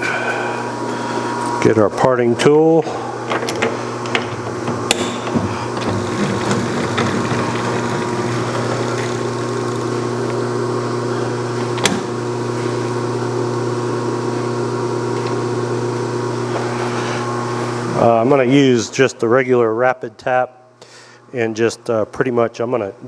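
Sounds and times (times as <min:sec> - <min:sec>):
metal lathe humming: 0:00.0 - 0:18.4.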